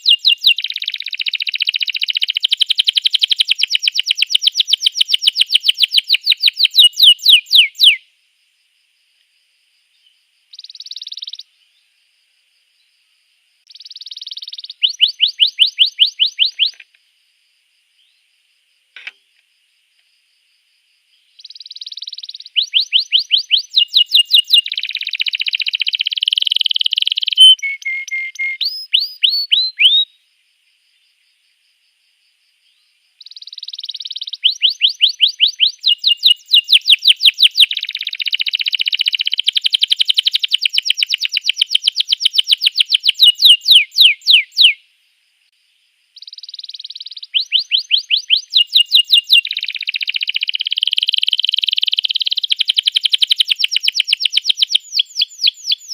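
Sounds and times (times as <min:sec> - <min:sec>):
canary singing trills: 0:00.0 - 0:08.0, 0:10.0 - 0:11.8, 0:13.7 - 0:16.9, 0:21.4 - 0:30.2, 0:32.7 - 0:44.8, 0:46.2 - 0:55.9.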